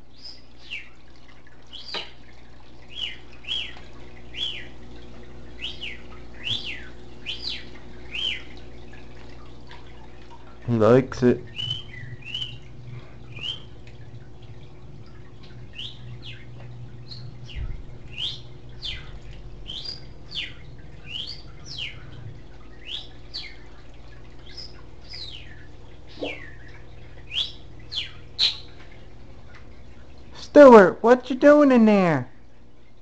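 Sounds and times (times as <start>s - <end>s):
steady low hum: 0.0s - 33.0s
budgie chirping: 15.7s - 22.2s, 27.3s - 28.8s.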